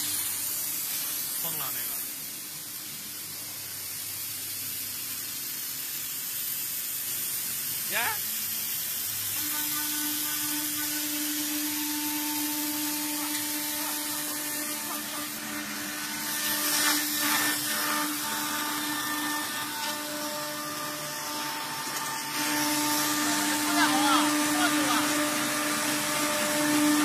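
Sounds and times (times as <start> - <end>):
hissing metal cutting noise: 0.0 - 27.0
router spindle whine: 9.4 - 27.0.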